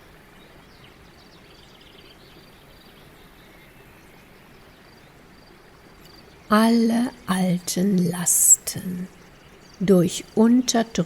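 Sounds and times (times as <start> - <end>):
faint birdsong chirps: 0.0 - 11.0
low background hiss: 0.0 - 11.0.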